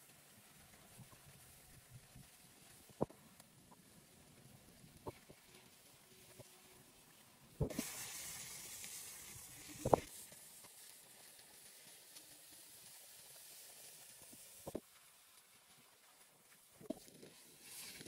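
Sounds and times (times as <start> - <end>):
food sizzling in a wok: 5.1 - 14.8.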